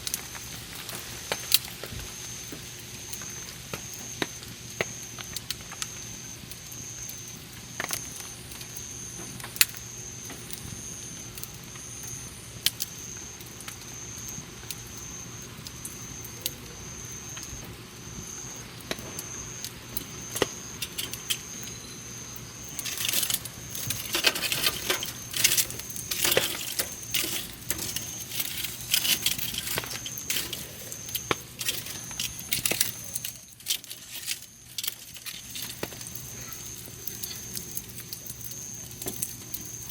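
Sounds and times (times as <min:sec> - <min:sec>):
campfire crackling and popping: 0:00.0 - 0:39.9
high pulsing chirp tone: 0:09.8 - 0:35.2.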